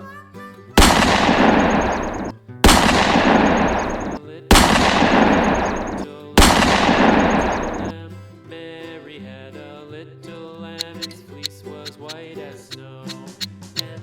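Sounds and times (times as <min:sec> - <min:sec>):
gunfire sound effect blasts: 0:00.8 - 0:07.9.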